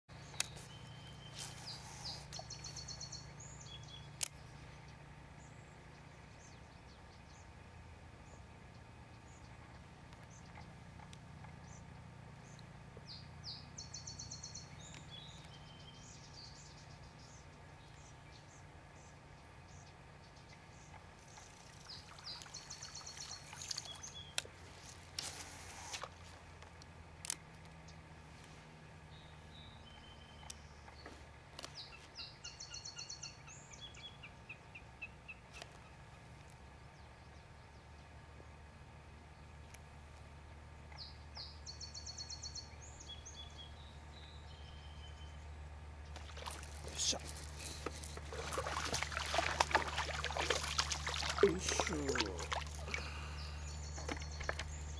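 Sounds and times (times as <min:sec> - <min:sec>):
steady low hum: 0:00.1 - 0:54.9
birds chirping and whistling: 0:00.2 - 0:04.2, 0:46.3 - 0:54.9
marsh birds calling: 0:00.2 - 0:07.5, 0:08.2 - 0:25.4, 0:40.9 - 0:54.9
low hum: 0:33.4 - 0:54.9.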